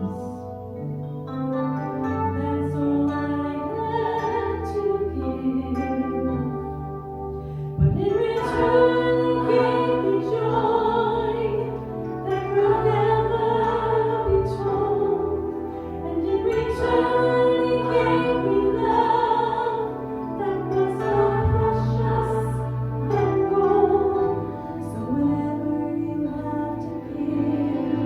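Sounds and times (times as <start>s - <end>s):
instrumental accompaniment: 0.0s - 28.0s
woman singing slow song: 7.8s - 28.0s.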